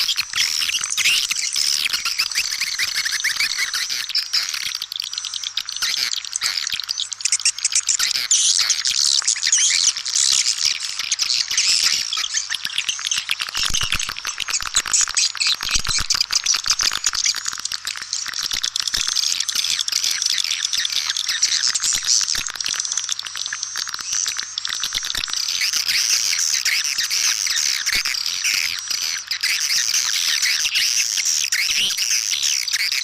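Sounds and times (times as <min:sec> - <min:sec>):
swiftlets twittering: 0:00.0 - 0:09.9.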